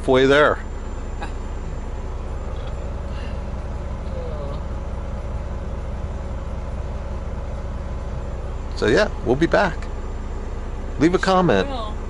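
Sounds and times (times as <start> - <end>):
road noise: 0.0 - 12.0
truck engine drone: 0.0 - 12.0.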